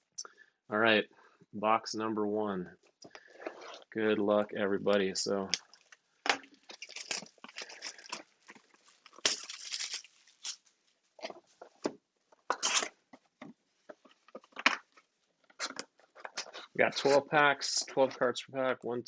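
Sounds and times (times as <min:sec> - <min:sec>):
plastic wrap tearing and crinkling: 0:05.5 - 0:11.7, 0:12.5 - 0:13.0.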